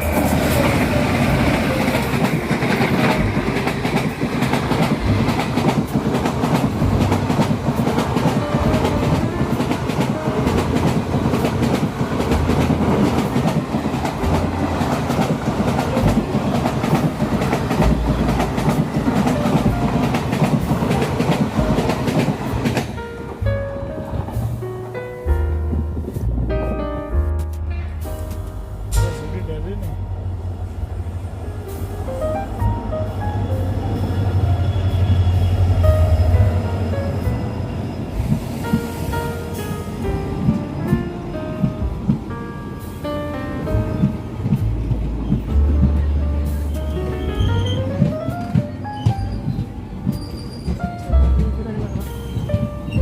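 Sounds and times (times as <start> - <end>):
train wheels clattering on rails: 0.0 - 23.3, 43.7 - 53.0.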